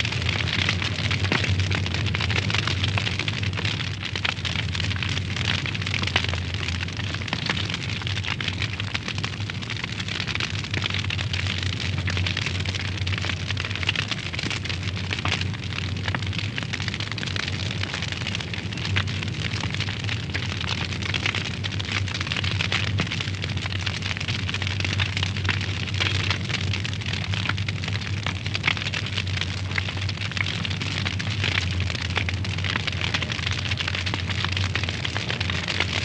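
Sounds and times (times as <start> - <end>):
wood fire crackling: 0.0 - 36.0
low rumble: 31.1 - 36.0.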